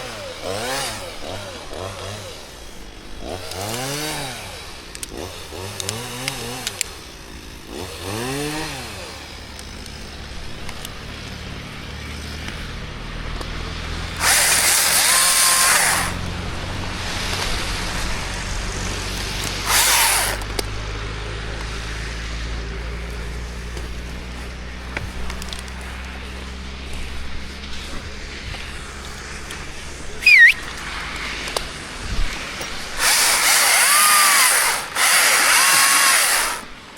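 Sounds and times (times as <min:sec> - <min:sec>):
chainsaw revving: 0:00.0 - 0:36.9
harsh noisy bursts: 0:14.1 - 0:16.3, 0:16.9 - 0:20.7, 0:29.7 - 0:36.8.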